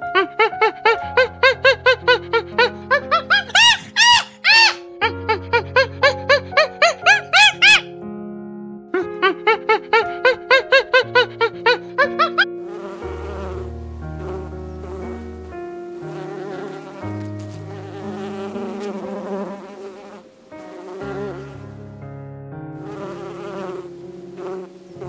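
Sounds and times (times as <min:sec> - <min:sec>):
squeaky rising cartoon tones: 0:00.2 - 0:07.9, 0:09.0 - 0:12.5
bees buzzing: 0:09.3 - 0:21.9, 0:22.8 - 0:25.0.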